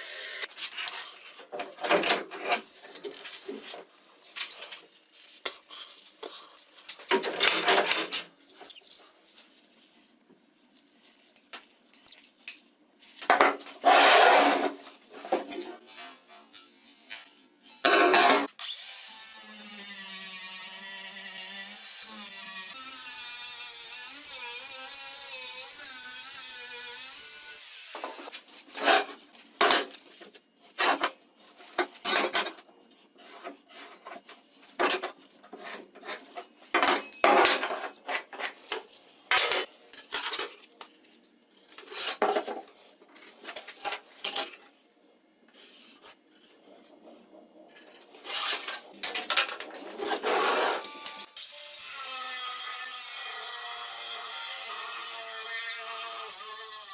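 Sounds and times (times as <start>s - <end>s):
hand tool scraping: 13.8s - 16.1s, 28.0s - 29.9s, 33.2s - 39.6s, 49.7s - 51.3s.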